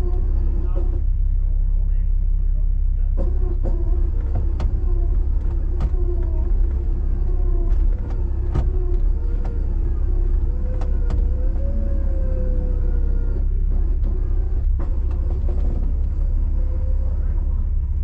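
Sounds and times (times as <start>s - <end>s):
engine and drivetrain rumble: 0.0s - 18.0s
sharp knocks and rattles: 3.2s - 12.5s, 13.7s - 17.2s.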